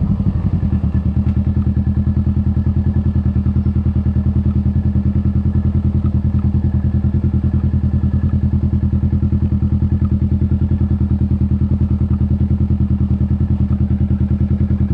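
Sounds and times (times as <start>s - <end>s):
motorcycle engine idling: 0.0s - 14.9s.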